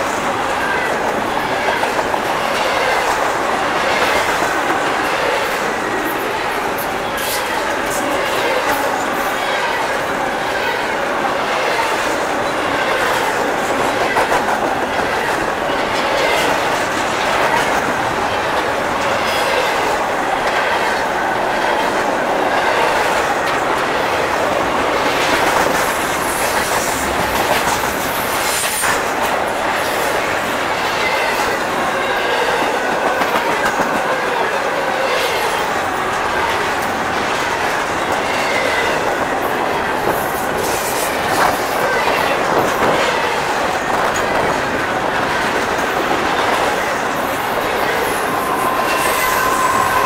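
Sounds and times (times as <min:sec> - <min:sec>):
train wheels rumbling on rails: 0:00.0 - 0:50.0
wheel squeal: 0:48.2 - 0:50.0.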